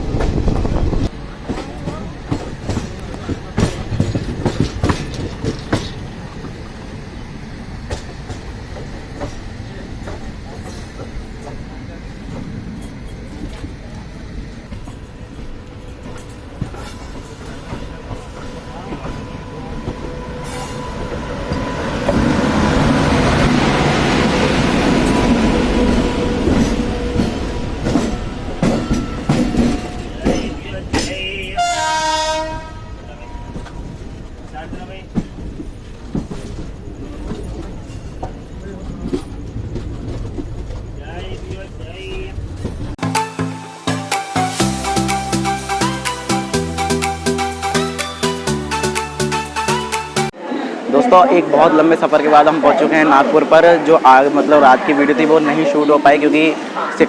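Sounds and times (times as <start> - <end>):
train wheels rumbling on track: 0.0 - 43.0
train wheels clattering over rail joints: 0.1 - 32.5, 33.6 - 43.0.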